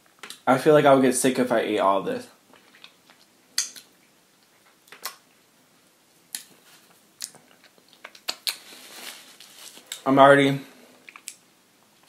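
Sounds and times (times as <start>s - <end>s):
person chewing with wet smacks: 2.5s - 5.5s, 6.3s - 8.6s, 11.0s - 11.4s.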